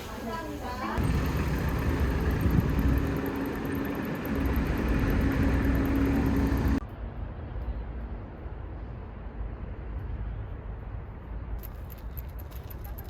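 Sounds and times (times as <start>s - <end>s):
vehicle engine rumbling: 0.0s - 6.8s.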